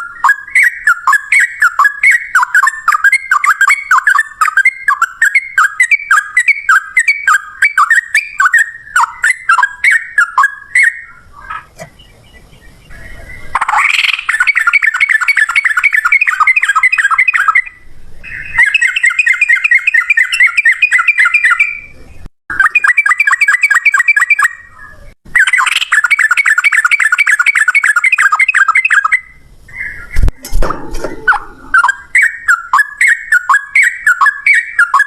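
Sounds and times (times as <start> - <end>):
bulbul singing rolling song: 0.0 - 35.0.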